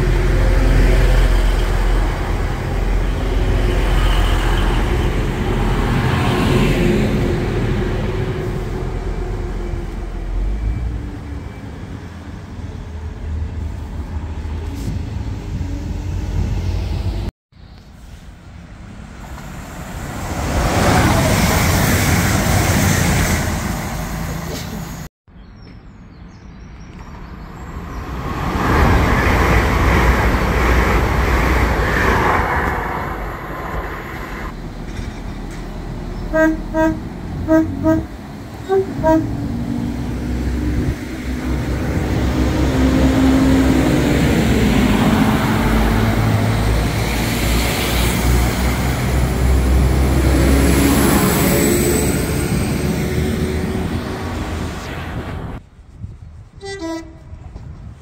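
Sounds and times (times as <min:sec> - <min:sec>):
passing train rumble: 0:00.0 - 0:25.1, 0:27.0 - 0:58.0
train horn short toots: 0:36.3 - 0:39.5, 0:56.6 - 0:57.6.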